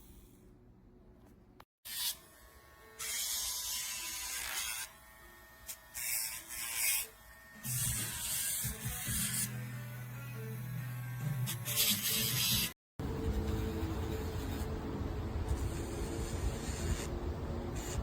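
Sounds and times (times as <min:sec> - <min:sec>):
electric nail grinder grinding: 0:01.9 - 0:12.8, 0:15.4 - 0:18.0.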